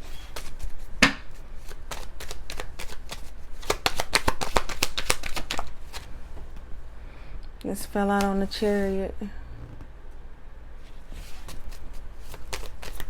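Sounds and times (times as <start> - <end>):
cards being shuffled: 0.0 - 6.1, 11.0 - 13.0.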